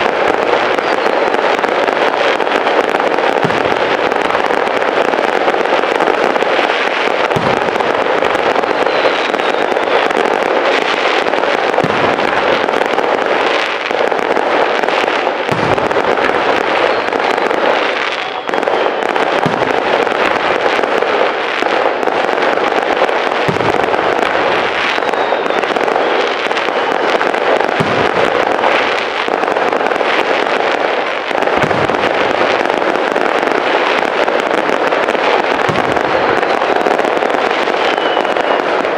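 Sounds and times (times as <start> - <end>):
faint fireworks whistle: 0.0 - 38.9
fireworks booming: 0.0 - 38.9
fireworks crackling: 0.0 - 38.9.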